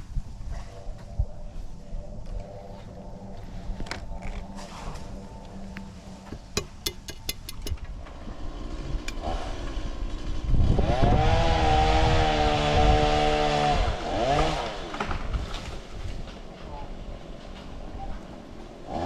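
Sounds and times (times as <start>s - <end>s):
engine revving: 8.0s - 15.2s.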